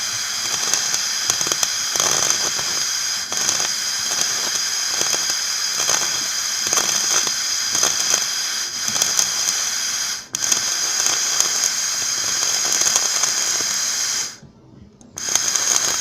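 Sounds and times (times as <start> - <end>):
electric arc welding crackle: 0.0 - 14.4, 15.2 - 16.0.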